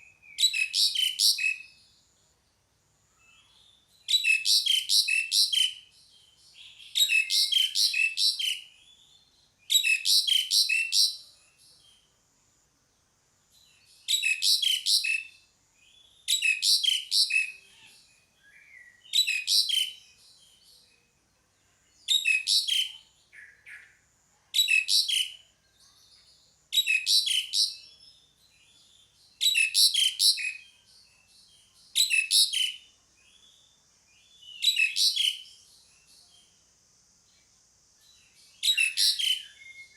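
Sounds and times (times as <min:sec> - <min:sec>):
starling calling: 0:38.6 - 0:39.9.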